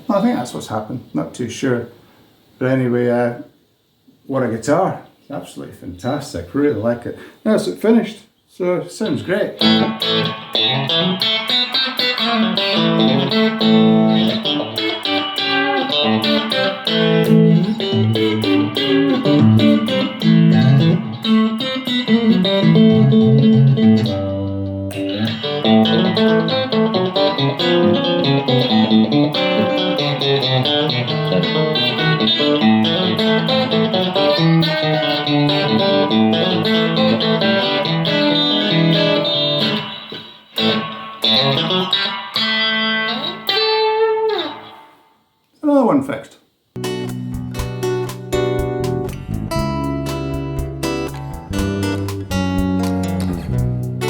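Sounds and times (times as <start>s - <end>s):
electric guitar playing: 9.6s - 45.2s, 46.8s - 54.0s.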